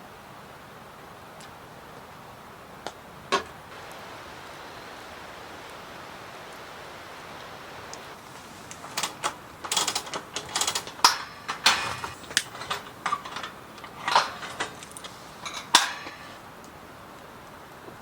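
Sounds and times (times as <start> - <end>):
steady background hiss: 0.0 - 18.0
camping gear clicks and clatters: 7.9 - 16.7.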